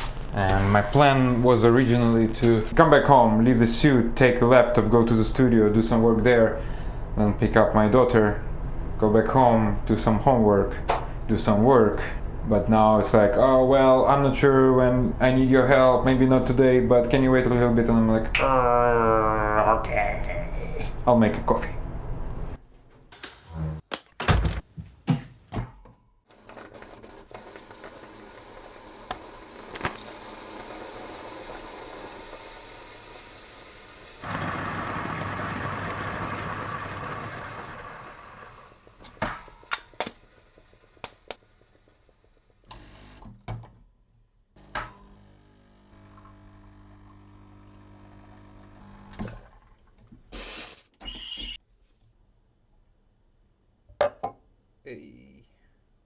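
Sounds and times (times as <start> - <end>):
coffee machine running: 26.3 - 43.2, 44.6 - 49.6.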